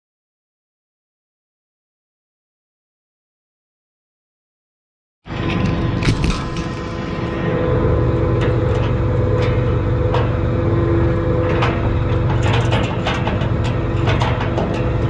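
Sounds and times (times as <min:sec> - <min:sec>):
metallic clicks and clanks: 0:11.5 - 0:15.0.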